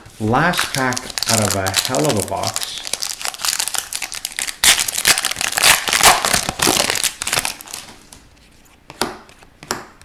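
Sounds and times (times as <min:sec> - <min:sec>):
plastic wrapper tearing and crumpling: 0:00.2 - 0:08.2.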